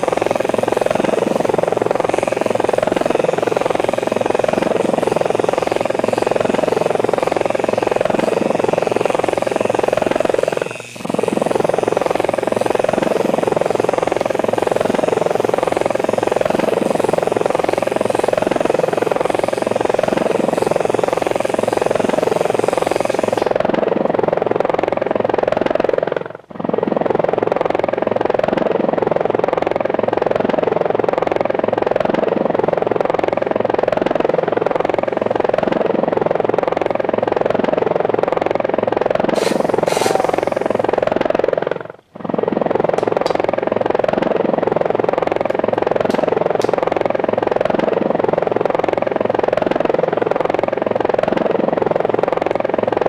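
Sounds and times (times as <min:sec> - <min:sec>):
hiss: 0:00.0 - 0:23.6, 0:39.4 - 0:41.0
helicopter rotors whirring: 0:00.0 - 0:53.0.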